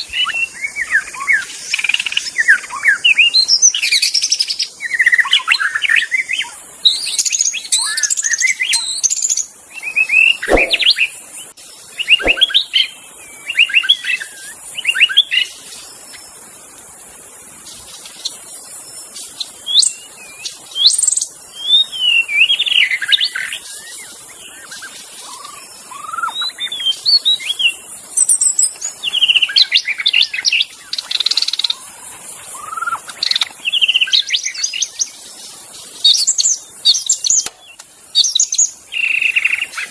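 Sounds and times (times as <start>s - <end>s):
songbird singing whistles and chatters: 12.0s - 12.7s.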